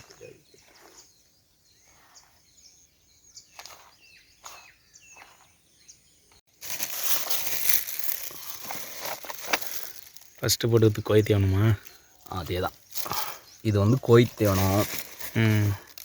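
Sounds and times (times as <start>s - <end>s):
faint bird chirps: 0.0s - 6.4s
loud rustling noise: 6.6s - 10.4s, 12.3s - 16.0s.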